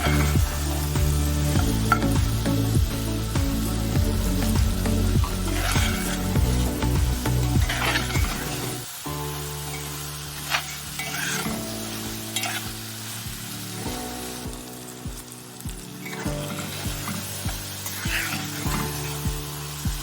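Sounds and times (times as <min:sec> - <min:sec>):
food sizzling in oil: 0:00.0 - 0:20.0
spoon scraping a pan: 0:05.3 - 0:06.4, 0:07.6 - 0:08.8, 0:09.8 - 0:12.7, 0:16.0 - 0:19.2.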